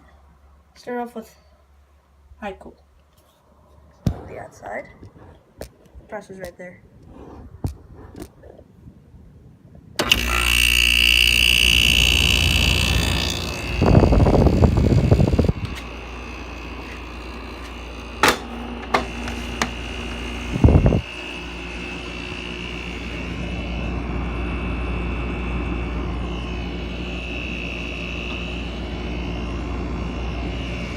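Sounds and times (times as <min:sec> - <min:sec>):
air conditioner hum: 0:08.8 - 0:30.9
loud burst of noise: 0:10.0 - 0:24.0.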